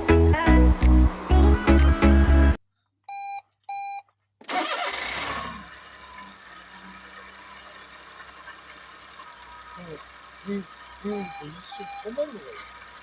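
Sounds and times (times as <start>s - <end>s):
car engine starting and idling: 0.0s - 2.6s, 4.5s - 11.2s
music: 0.0s - 2.6s
short electronic beeps: 3.1s - 4.0s, 11.1s - 12.2s.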